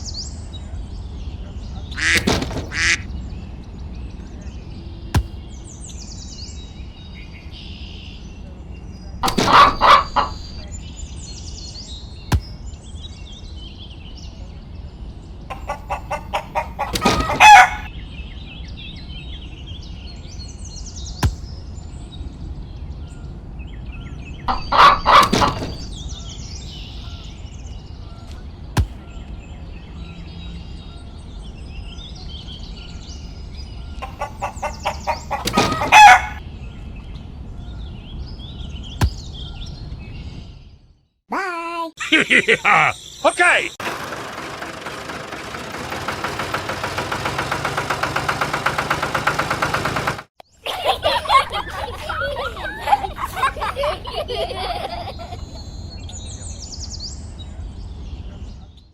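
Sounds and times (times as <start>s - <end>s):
small birds chirping: 0.0s - 43.8s, 50.4s - 58.9s
rooster crowing: 15.6s - 17.9s, 34.2s - 36.4s.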